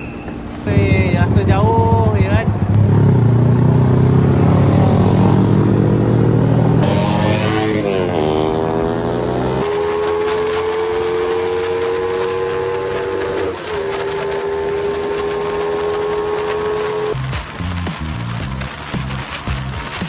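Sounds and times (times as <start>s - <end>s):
scooter engine whining at high revs: 0.0s - 17.8s.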